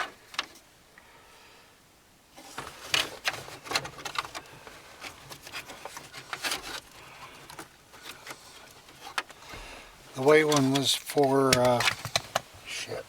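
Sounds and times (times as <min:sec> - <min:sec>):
plastic clicks and rustling: 0:00.0 - 0:00.6, 0:02.4 - 0:09.4, 0:10.3 - 0:12.6.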